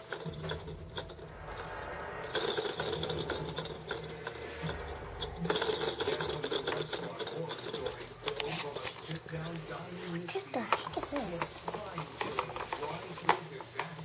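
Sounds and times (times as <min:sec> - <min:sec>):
low steady hum: 0:00.1 - 0:10.4.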